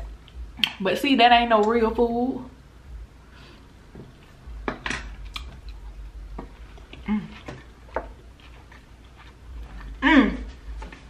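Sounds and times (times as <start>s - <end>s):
crunchy chewing: 5.0s - 11.0s.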